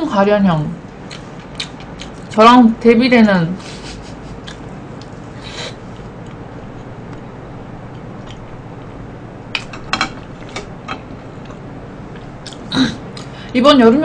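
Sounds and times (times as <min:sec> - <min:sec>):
low background hum: 0:00.0 - 0:14.0
woman chewing food: 0:00.9 - 0:02.4, 0:03.7 - 0:07.2, 0:07.8 - 0:09.0, 0:10.3 - 0:13.4.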